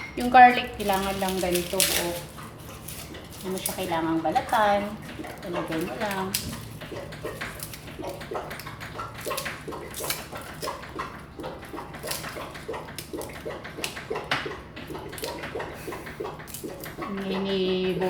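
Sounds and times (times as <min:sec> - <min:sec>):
garlic cloves clicking and crackling: 0:00.0 - 0:17.9.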